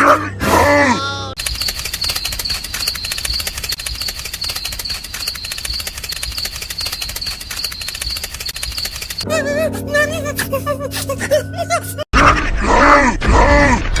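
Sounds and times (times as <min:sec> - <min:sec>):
small motor clattering gears: 0:01.4 - 0:09.2.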